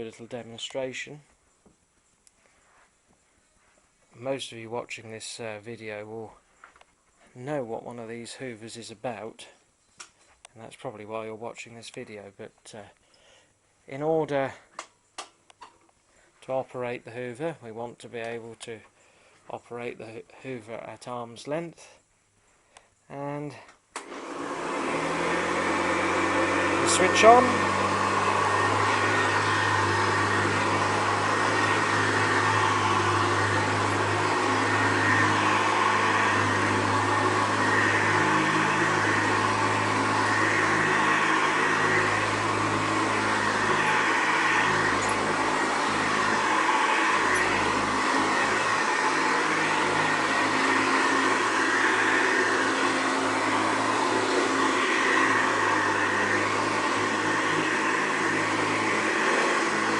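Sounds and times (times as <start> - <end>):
upright vacuum cleaner running: 24.0 - 59.9.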